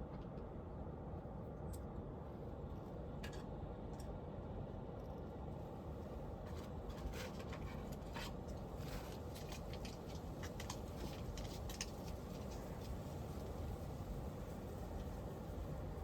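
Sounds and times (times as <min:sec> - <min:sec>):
kittens clicking and rustling: 0:07.0 - 0:13.1.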